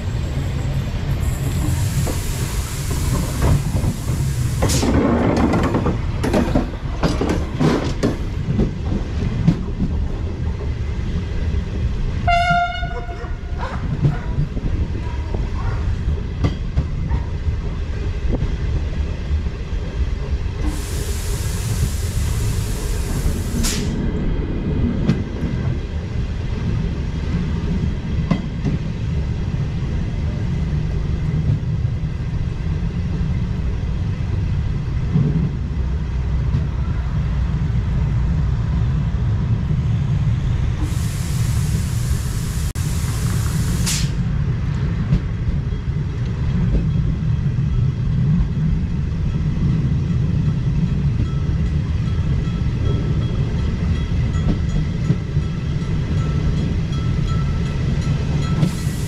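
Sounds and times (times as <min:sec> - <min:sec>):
train wheels rumbling on rails: 0:00.0 - 0:59.0
hiss: 0:01.2 - 0:05.0, 0:20.6 - 0:24.0, 0:40.8 - 0:44.2, 0:58.6 - 0:59.0.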